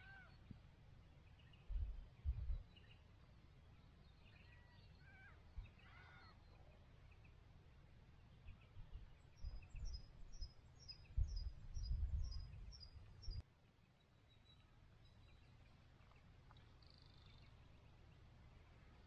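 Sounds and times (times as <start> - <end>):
wind rumbling on microphone: 1.6 - 3.0, 8.5 - 13.4.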